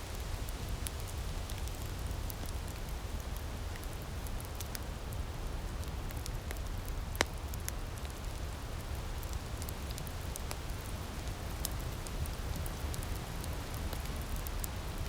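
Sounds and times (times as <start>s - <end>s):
steady fire hiss: 0.0s - 15.0s
wood fire crackling: 0.1s - 15.0s.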